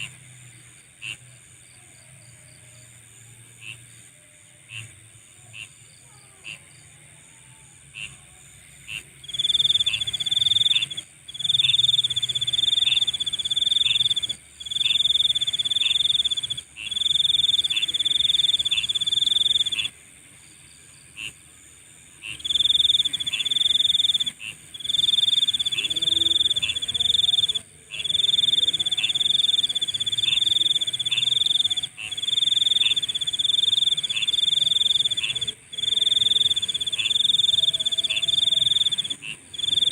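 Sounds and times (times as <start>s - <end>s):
short insect chirps: 8.9s - 21.4s, 22.2s - 39.9s
insect buzzing trill: 9.2s - 20.0s, 22.2s - 39.9s.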